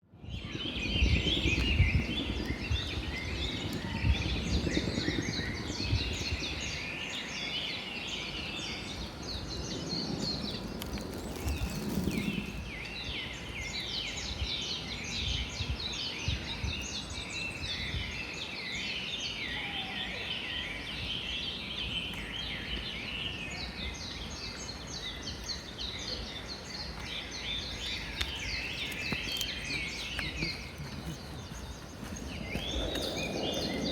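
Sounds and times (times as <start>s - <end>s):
small birds chirping chorus: 0.0s - 33.9s
low rumble: 29.4s - 33.9s.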